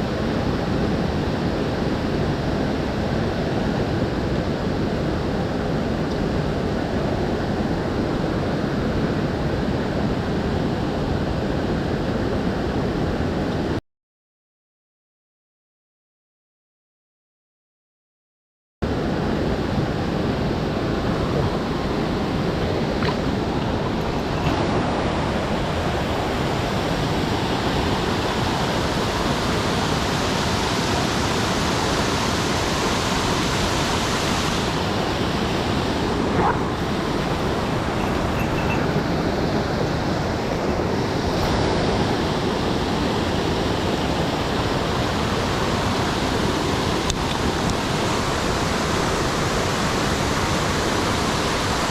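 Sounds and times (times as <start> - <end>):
stream rushing over rocks: 19.0 - 51.9.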